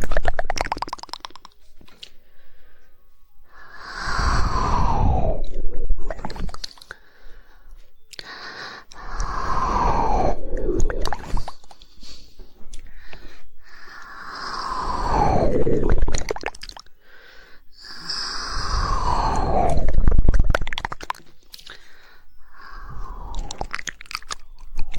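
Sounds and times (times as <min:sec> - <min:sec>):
tongue clicks: 0:00.0 - 0:02.2, 0:05.4 - 0:07.0, 0:08.1 - 0:09.4, 0:10.4 - 0:13.0, 0:17.8 - 0:21.9, 0:22.6 - 0:24.9
wet mouth sounds: 0:00.0 - 0:02.2, 0:03.6 - 0:07.0, 0:08.1 - 0:13.0, 0:14.0 - 0:16.9, 0:17.8 - 0:22.0, 0:22.6 - 0:24.9.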